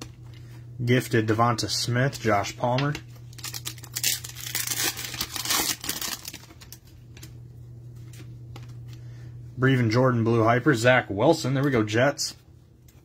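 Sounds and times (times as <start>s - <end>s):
low electrical hum: 0.0s - 13.0s
plastic wrapping crinkling: 3.1s - 7.0s.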